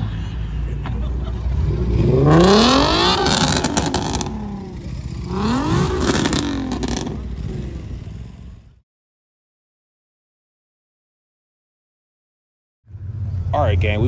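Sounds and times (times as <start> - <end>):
sports car engine revving: 1.2 - 8.7.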